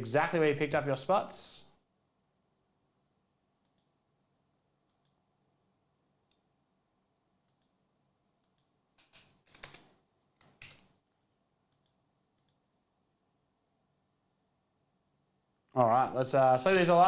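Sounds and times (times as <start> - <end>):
faint clicks: 3.6 - 3.9, 4.8 - 5.2, 11.7 - 12.6.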